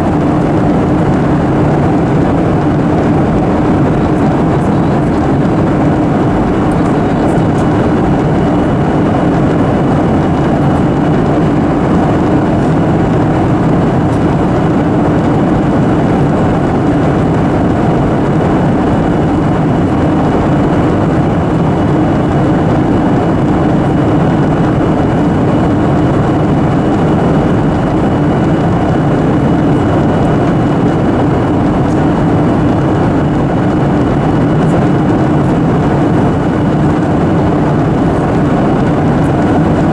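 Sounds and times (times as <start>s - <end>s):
airliner cabin engine roar: 0.0s - 39.9s.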